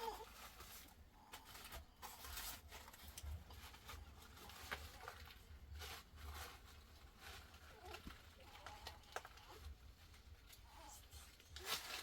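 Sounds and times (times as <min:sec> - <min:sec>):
soft rustles and crackles: 0:00.0 - 0:12.0.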